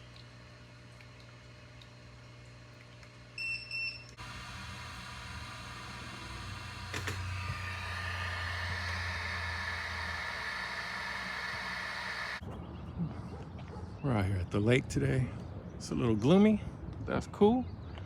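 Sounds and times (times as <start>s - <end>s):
high-pitched whine: 4.2s - 12.4s
low hum: 4.2s - 12.4s.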